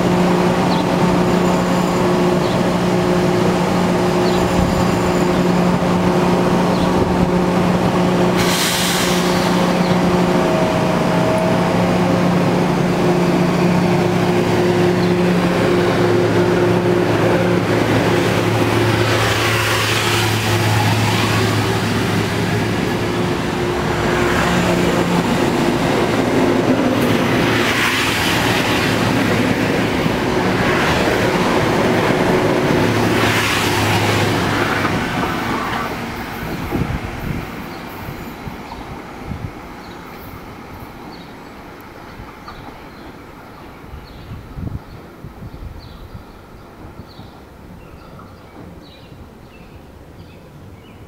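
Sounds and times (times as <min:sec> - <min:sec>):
rushing wheel and rail noise: 0:00.0 - 0:51.0
train motor hum: 0:09.1 - 0:33.3.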